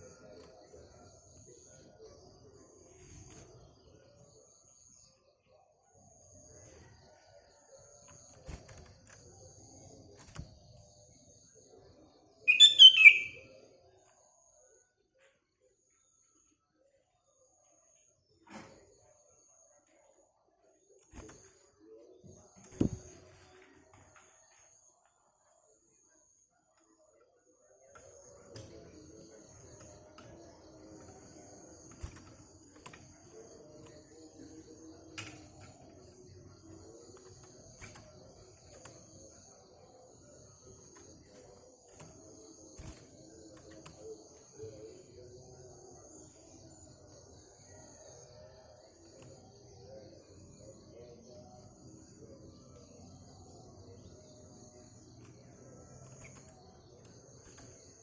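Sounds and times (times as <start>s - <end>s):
crickets chirring: 12.5s - 13.4s, 28.2s - 58.0s.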